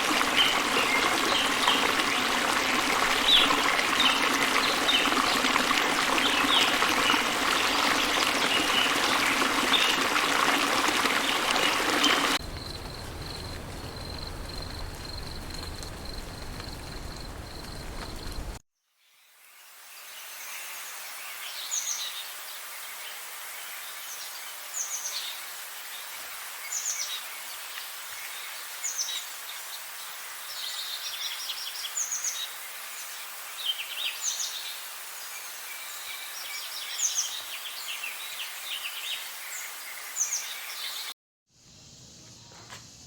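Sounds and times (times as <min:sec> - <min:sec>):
outdoor ambience hiss: 0:00.0 - 0:43.0.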